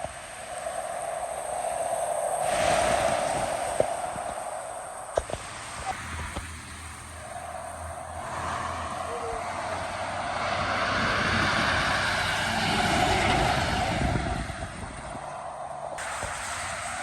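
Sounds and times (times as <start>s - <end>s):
heavy truck passing: 6.0s - 17.0s.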